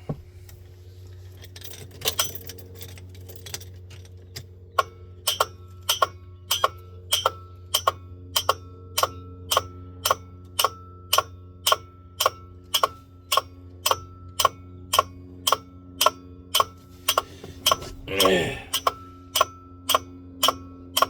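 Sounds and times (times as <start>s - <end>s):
low electrical hum: 0.0s - 21.0s
throaty cough-like sound: 17.8s - 18.9s.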